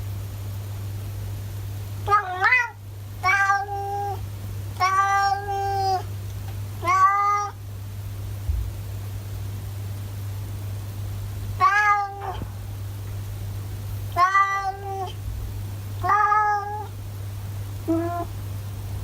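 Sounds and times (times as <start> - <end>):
cat meowing: 2.0 - 4.2, 4.8 - 6.1, 6.8 - 7.6, 11.6 - 12.5, 14.1 - 15.2, 16.0 - 16.9, 17.9 - 18.3.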